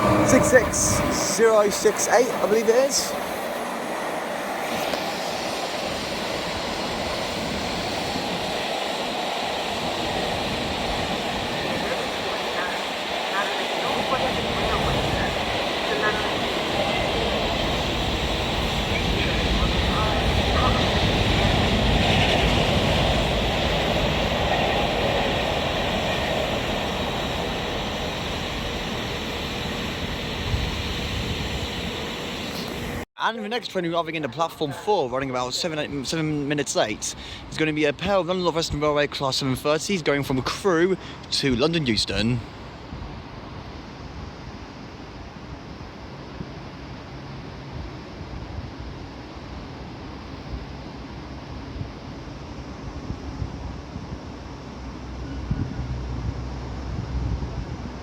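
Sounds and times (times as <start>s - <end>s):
freight train wheels rushing: 0.0s - 33.0s.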